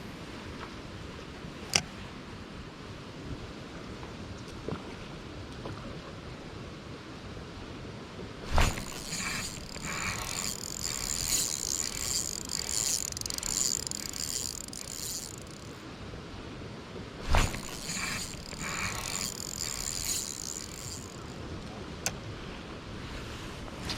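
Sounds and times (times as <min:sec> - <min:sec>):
fishing reel whirring and ticking: 0:08.5 - 0:15.8, 0:17.3 - 0:21.8.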